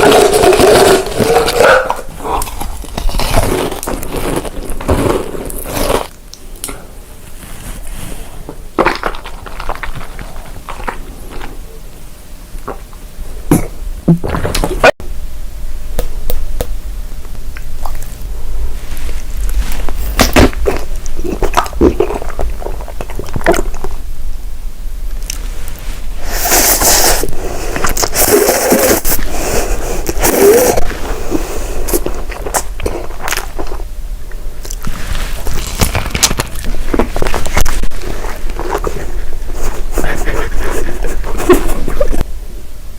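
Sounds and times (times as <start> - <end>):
chewing with crunchy bites: 0.0 - 6.8, 8.8 - 11.7, 19.0 - 24.0, 34.6 - 42.2.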